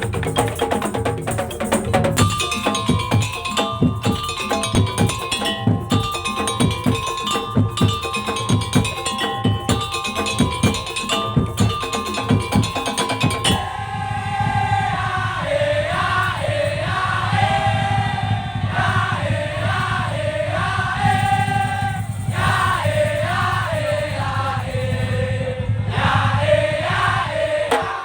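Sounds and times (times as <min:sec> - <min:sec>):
street percussion ensemble: 0:00.0 - 0:28.0
wavering ornamented melody: 0:02.2 - 0:13.6.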